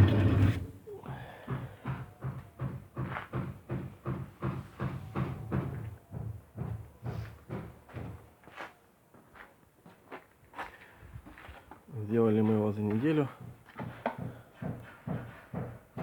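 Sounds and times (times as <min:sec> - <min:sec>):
dull thuds: 0:01.4 - 0:08.3.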